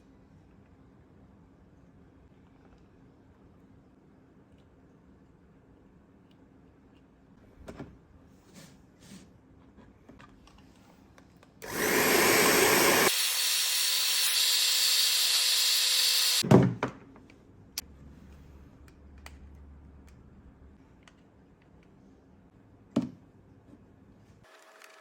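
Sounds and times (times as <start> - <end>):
small power tool running: 11.6 - 16.4.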